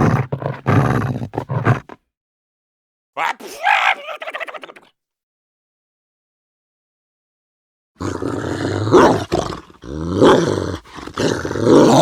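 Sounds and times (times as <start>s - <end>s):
dog growling grumbles: 0.0s - 2.0s, 8.0s - 12.0s.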